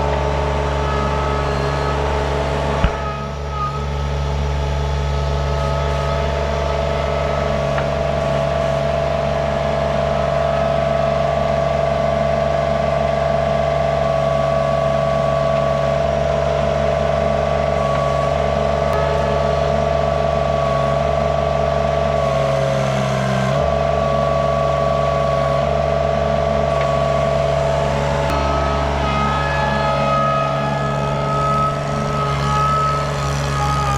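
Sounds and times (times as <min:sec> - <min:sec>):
skid steer engine running: 0:00.0 - 0:33.9.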